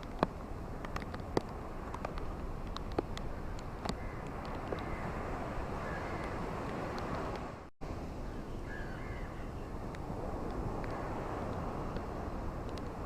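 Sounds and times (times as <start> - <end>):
ocean surf: 0.0 - 13.0
faint bird calls: 5.8 - 6.4, 8.2 - 9.7.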